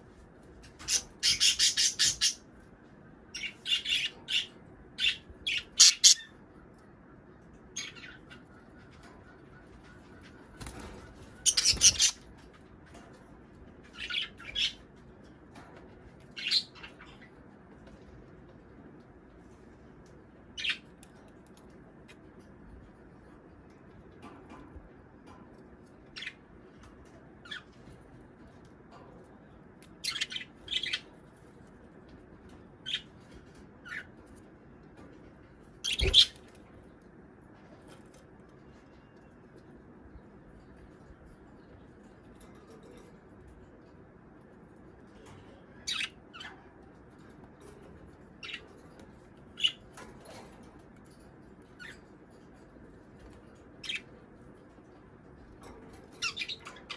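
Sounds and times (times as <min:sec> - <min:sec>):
budgerigars chirping and squawking: 0:00.8 - 0:02.5, 0:03.4 - 0:06.4, 0:09.1 - 0:12.2, 0:35.8 - 0:36.4, 0:45.9 - 0:46.6, 0:56.2 - 0:56.9.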